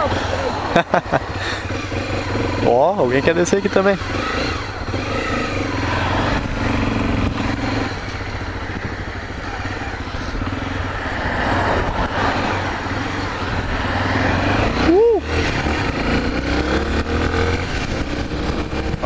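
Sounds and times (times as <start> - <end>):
motorcycle engine running: 0.0 - 19.0
steady rushing noise: 0.0 - 19.0.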